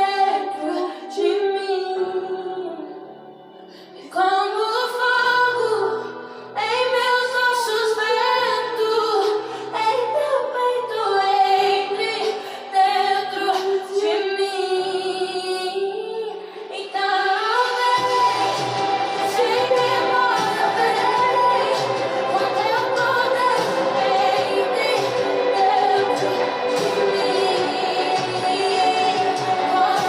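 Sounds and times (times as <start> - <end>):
woman singing worship song: 0.0 - 30.0
low instrumental accompaniment: 18.0 - 30.0.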